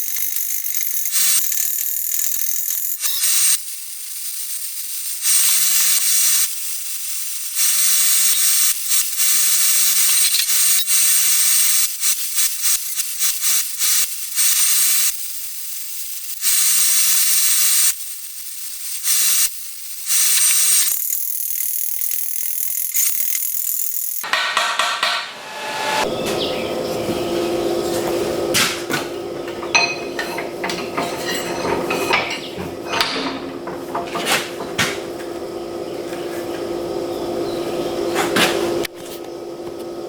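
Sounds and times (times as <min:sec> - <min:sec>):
electric arc welding crackling hiss: 0:00.0 - 0:24.3.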